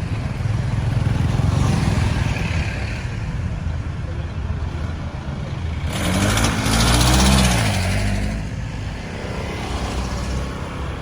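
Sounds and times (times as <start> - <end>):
road traffic noise: 0.0 - 11.0
vehicle passing close by: 5.7 - 11.0.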